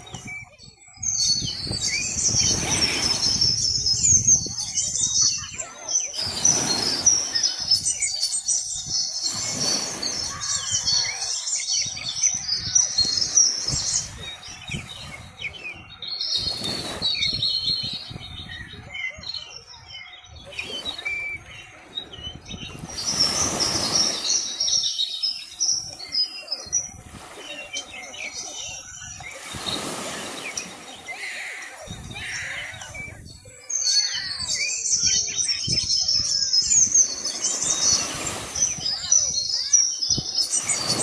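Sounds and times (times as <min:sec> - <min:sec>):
small birds chirping: 0:00.0 - 0:41.0
gusts of rushing noise: 0:09.2 - 0:10.9.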